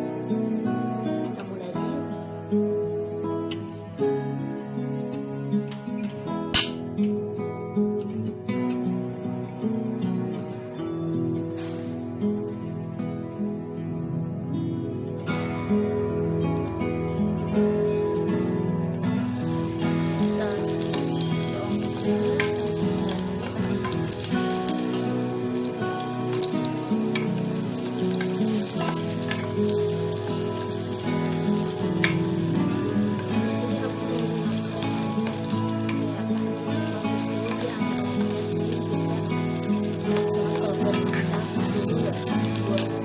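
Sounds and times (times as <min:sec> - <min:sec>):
oil sizzling in a pan: 0:08.6 - 0:12.7, 0:13.4 - 0:43.0.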